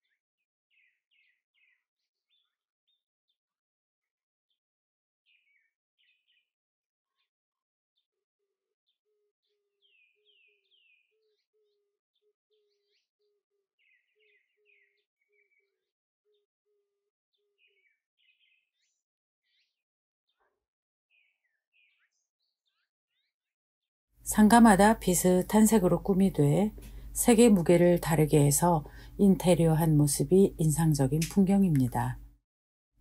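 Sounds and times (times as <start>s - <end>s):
faint birdsong: 0.0s - 2.6s, 5.3s - 6.5s, 9.8s - 11.7s, 12.5s - 13.1s, 13.8s - 15.7s, 17.6s - 19.8s, 21.1s - 23.3s.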